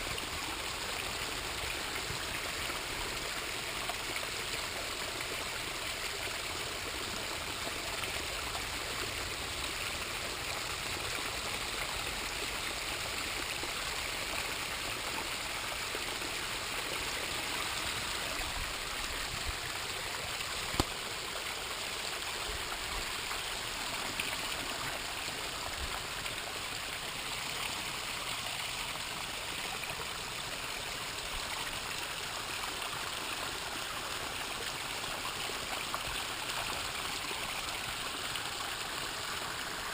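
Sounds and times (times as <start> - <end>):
water splashing over rocks: 16.1 - 39.9.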